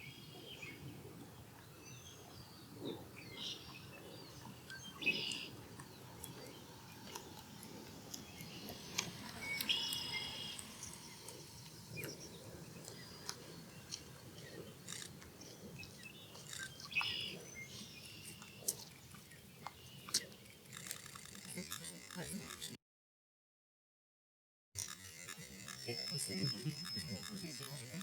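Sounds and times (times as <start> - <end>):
outdoor background noise: 0.0 - 22.8, 24.8 - 28.0
bird chirping: 1.6 - 22.5, 24.8 - 28.0.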